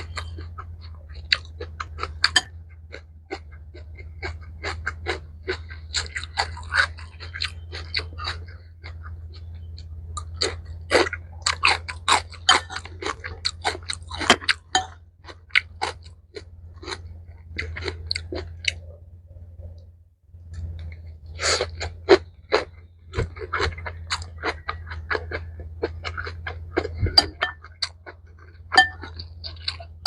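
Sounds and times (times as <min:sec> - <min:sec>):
close chewing crunches: 0:00.0 - 0:30.0
steady low hum: 0:00.0 - 0:30.0.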